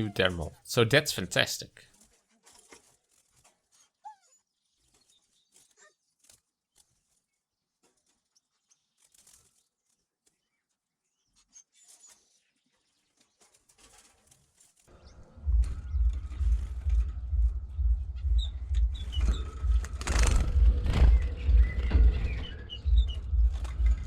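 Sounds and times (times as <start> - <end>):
finches fluttering: 8.0 - 10.5, 18.9 - 24.0
finch chirp: 18.1 - 24.0.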